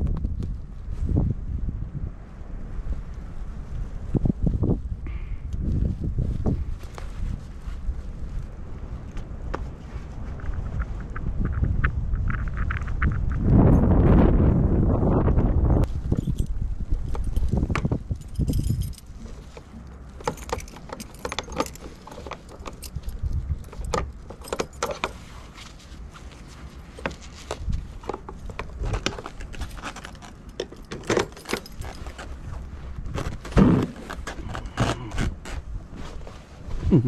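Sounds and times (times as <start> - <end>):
low rumble: 0.0 - 19.2
small clicks and clinks: 16.1 - 25.2, 26.9 - 32.3.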